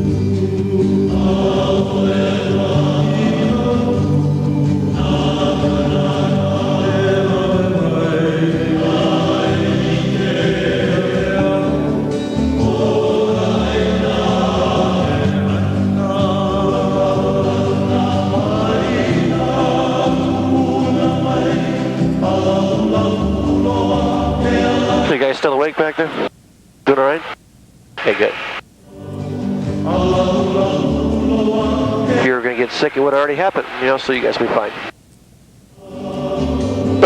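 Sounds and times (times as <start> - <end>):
choir singing held chords: 0.0 - 26.3, 28.0 - 34.9, 35.7 - 37.0.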